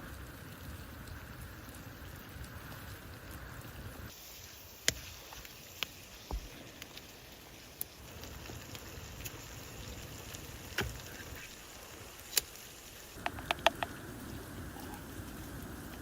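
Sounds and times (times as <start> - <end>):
steady low hiss: 4.1 - 16.0
sharp clicks and crackles: 12.2 - 14.0.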